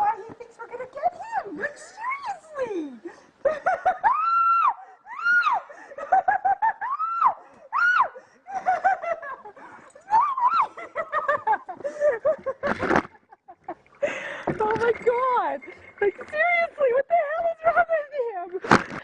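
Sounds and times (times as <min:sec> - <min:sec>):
woman laughing hysterically: 0:03.1 - 0:14.2.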